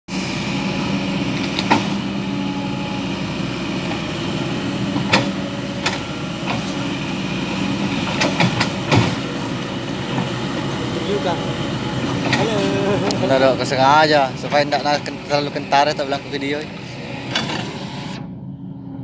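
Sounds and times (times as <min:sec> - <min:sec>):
truck engine running at low revs: 0:00.1 - 0:19.0
sharp metal knocks and clanks: 0:08.0 - 0:09.3.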